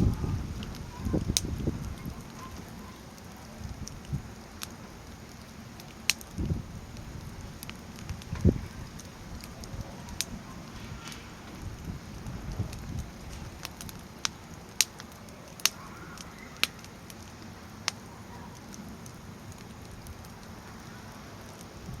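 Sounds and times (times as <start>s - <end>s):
low steady rumble: 0.0s - 15.5s
fire sharp pops: 0.0s - 22.0s
firewood crackling: 0.0s - 22.0s.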